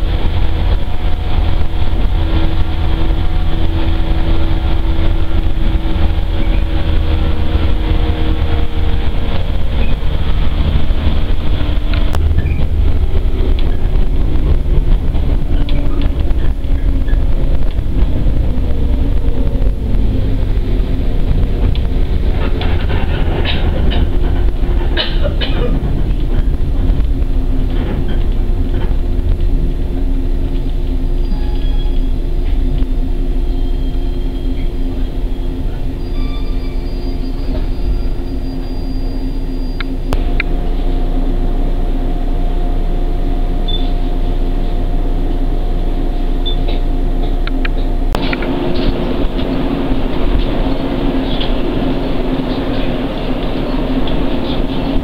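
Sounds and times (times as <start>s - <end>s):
train wheels rumbling on rail: 0.0s - 55.0s
high wheel squeals: 11.5s - 12.9s, 31.1s - 32.7s, 33.3s - 40.1s, 43.6s - 44.8s.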